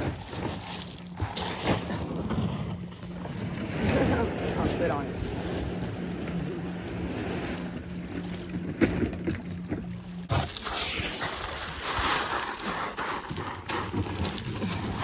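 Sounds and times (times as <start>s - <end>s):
low steady hum: 0.0s - 15.0s
water sloshing around a kayak: 0.0s - 15.0s.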